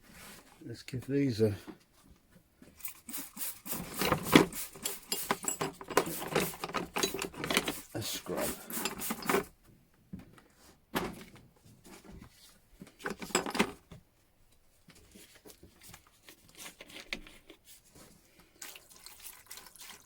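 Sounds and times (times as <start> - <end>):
tools scrubbed in splashing water: 2.8 - 9.5.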